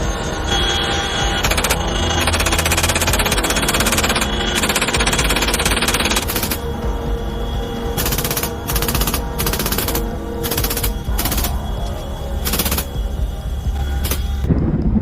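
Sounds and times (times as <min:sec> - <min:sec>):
background music: 0:00.0 - 0:15.0
automatic gunfire bursts: 0:01.4 - 0:06.7, 0:08.0 - 0:11.6, 0:12.4 - 0:13.0.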